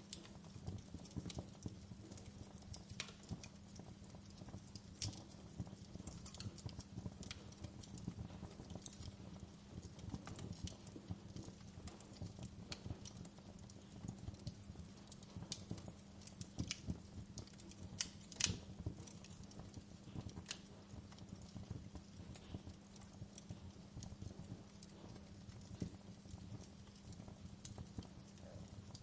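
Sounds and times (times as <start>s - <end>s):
fire crackling: 0.0s - 29.0s.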